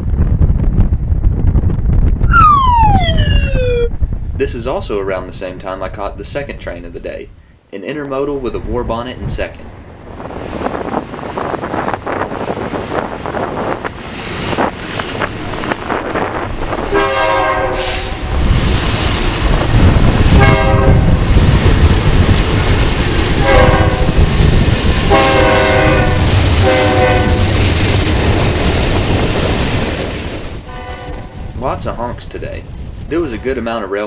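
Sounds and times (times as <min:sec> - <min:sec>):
diesel locomotive engines rumbling: 0:08.4 - 0:34.0
train wheels on rails: 0:10.1 - 0:33.8
locomotive air horn blasts: 0:16.9 - 0:18.3, 0:20.3 - 0:21.2, 0:23.4 - 0:24.2, 0:25.1 - 0:27.4, 0:30.7 - 0:31.4.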